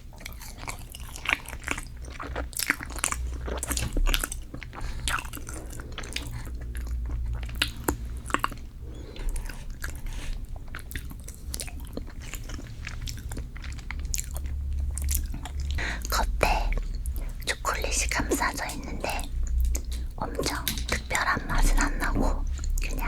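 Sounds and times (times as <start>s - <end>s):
person chewing with wet mouth clicks: 0.2s - 23.0s.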